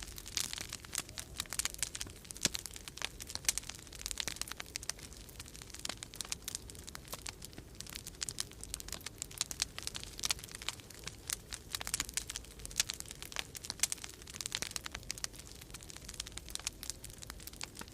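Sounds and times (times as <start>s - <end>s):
fire crackling in a fireplace: 0.0s - 17.9s
low rumble of storm wind: 0.0s - 17.9s.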